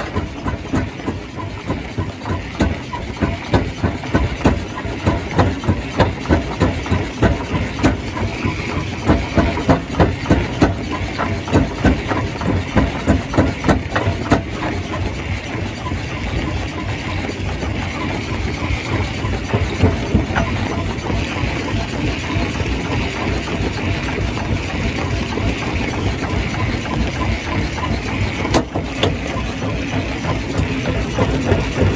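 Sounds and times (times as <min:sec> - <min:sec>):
stone crusher machine drone: 0:00.0 - 0:31.9.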